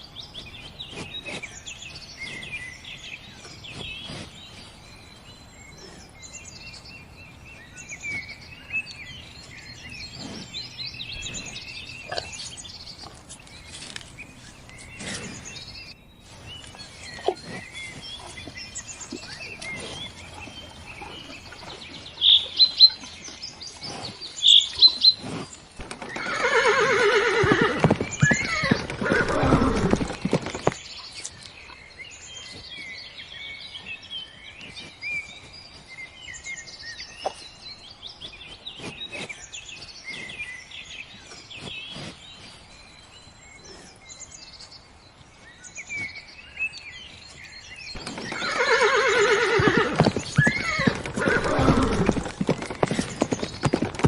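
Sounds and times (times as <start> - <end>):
horse whinnying: 26.0 - 30.1, 48.2 - 52.4.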